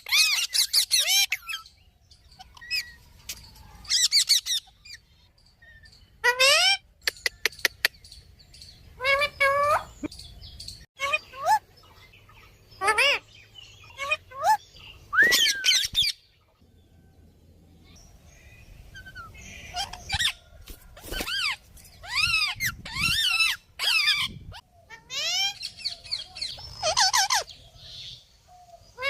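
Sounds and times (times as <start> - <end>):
parrots giving screechy calls: 0.0 - 1.7, 3.8 - 5.1, 6.2 - 6.9, 9.0 - 10.0, 12.8 - 13.2, 13.8 - 14.6, 19.0 - 27.5.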